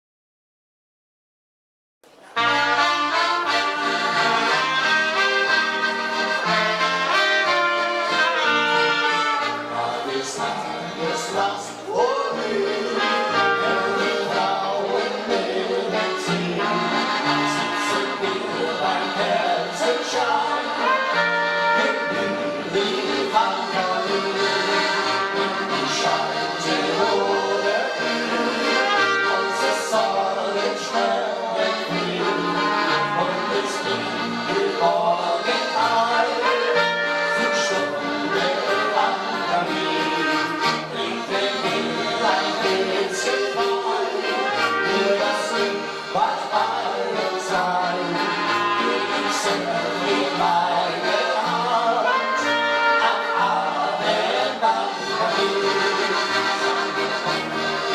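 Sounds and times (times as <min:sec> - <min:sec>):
accordion: 0:02.1 - 0:57.9
folk-pop band playing: 0:02.2 - 0:57.9
brass: 0:02.3 - 0:57.9.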